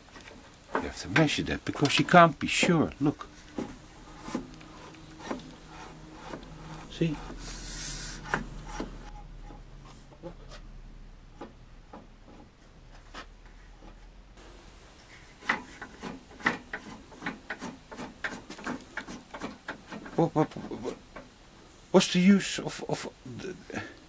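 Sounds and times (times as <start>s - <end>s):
parts clicking and rubbing: 0.0s - 9.1s, 14.4s - 22.0s.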